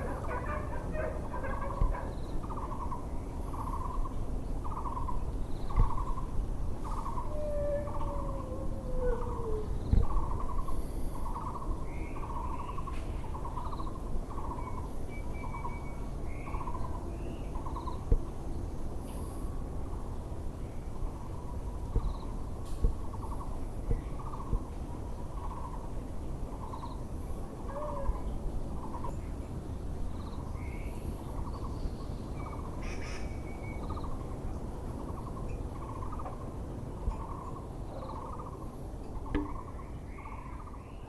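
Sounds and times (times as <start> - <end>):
steady background hum: 0.0 - 41.0
barbet low pulsed call: 39.2 - 40.7.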